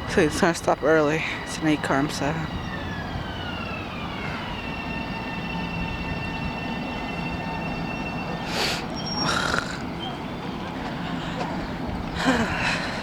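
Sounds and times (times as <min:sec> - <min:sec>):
electric train whine: 0:00.0 - 0:13.0.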